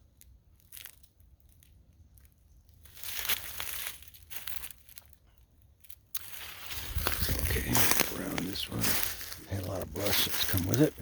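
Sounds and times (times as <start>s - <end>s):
footsteps crunching through dry leaves: 2.8s - 5.2s, 5.8s - 11.0s.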